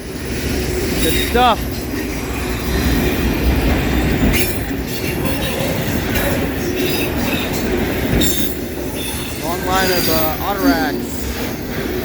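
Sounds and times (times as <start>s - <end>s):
clatter over track: 0.0s - 12.0s
freight train wheels rumbling on rail: 0.0s - 12.0s
thin wheel squeals: 6.8s - 11.7s.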